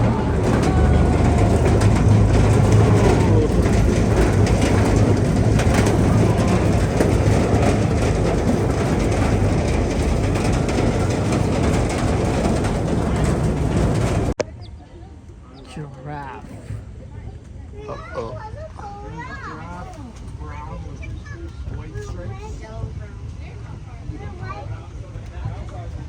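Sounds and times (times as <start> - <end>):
rolling noise: 0.0 - 14.4
vehicle engine drone: 0.0 - 14.4.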